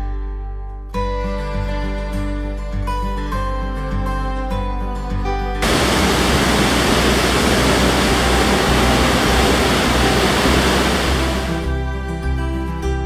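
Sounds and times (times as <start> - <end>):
rushing ship wake: 5.6 - 11.7.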